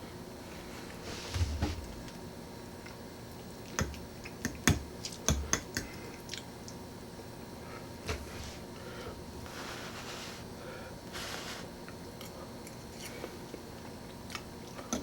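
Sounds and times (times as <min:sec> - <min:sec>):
man chewing food: 0:01.8 - 0:06.8, 0:11.9 - 0:15.0.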